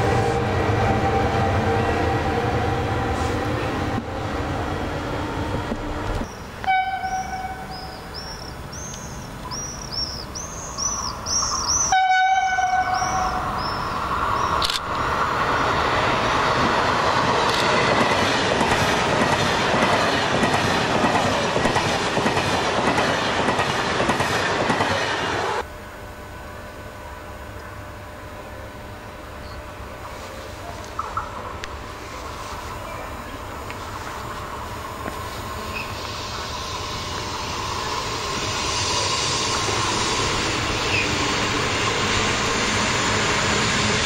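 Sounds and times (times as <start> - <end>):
rush of train passing: 0.0 - 25.7, 28.0 - 44.0
electric locomotive humming: 0.0 - 44.0
train horn blasts: 6.6 - 7.9, 11.8 - 13.6.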